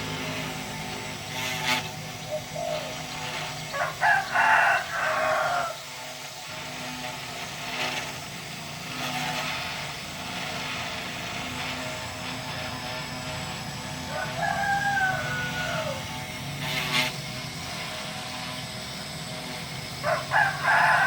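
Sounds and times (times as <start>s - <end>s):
steady mechanical hum: 0.0s - 21.0s
rooster crowing: 3.7s - 5.8s, 14.0s - 16.2s, 20.0s - 21.0s.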